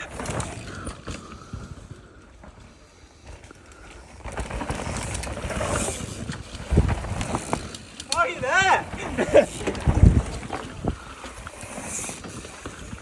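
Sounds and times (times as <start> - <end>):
rumble of bike tyres: 0.0 - 13.0
wind on microphone: 5.8 - 7.6, 8.4 - 13.0.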